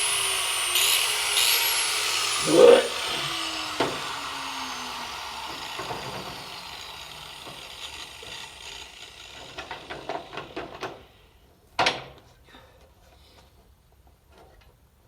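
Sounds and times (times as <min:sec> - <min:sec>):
power tool winding down: 0:00.0 - 0:11.2.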